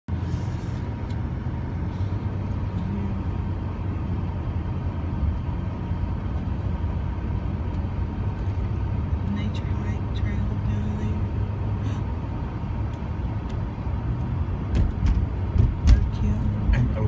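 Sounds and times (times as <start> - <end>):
vehicle engine rumble: 0.1 - 17.0.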